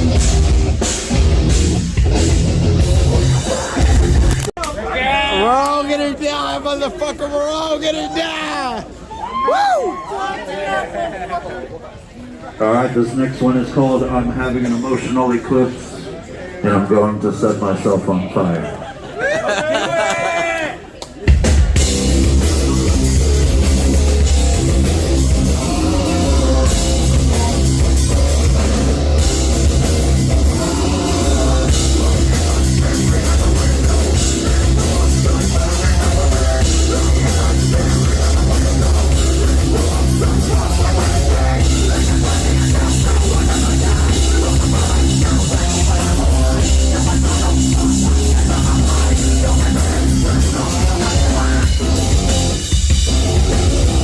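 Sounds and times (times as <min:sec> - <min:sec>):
drum kit: 0:00.0 - 0:04.5, 0:21.2 - 0:54.0
heavy bass: 0:00.0 - 0:04.5, 0:21.3 - 0:54.0
heavy metal band playing: 0:00.0 - 0:04.5, 0:21.3 - 0:54.0
distorted electric guitars: 0:00.0 - 0:04.6, 0:21.3 - 0:54.0.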